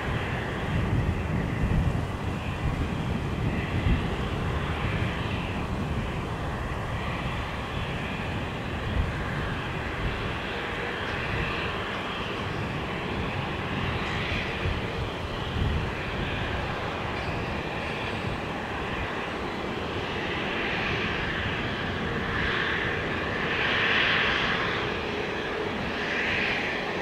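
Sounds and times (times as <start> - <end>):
jet engines running: 0.0 - 27.0.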